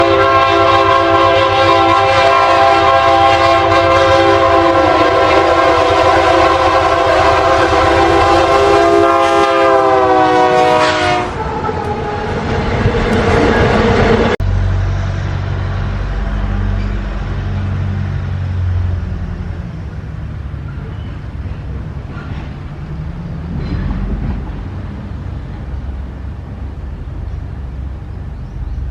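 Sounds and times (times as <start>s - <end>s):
locomotive air horn: 0.0s - 12.3s
diesel locomotive engine running: 0.0s - 28.9s
passing train rumble: 0.0s - 28.9s.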